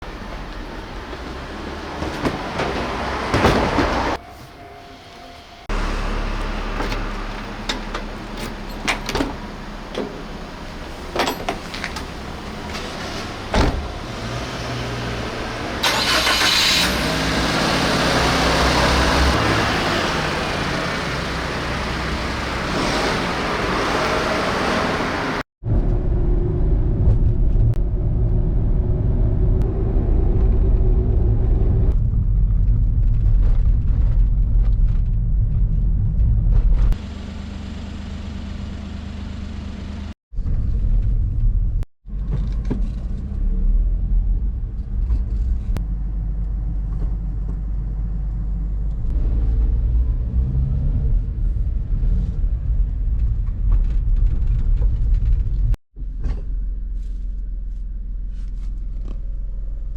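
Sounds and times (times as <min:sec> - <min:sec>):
car engine and road noise: 0:00.0 - 0:59.9
steady deep rumble: 0:25.6 - 0:37.0, 0:40.3 - 0:59.9.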